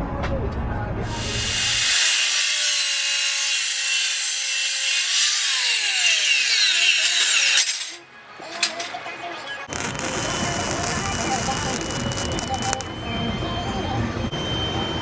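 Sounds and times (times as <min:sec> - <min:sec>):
power saw cutting steel: 0:01.0 - 0:08.0, 0:09.7 - 0:12.9.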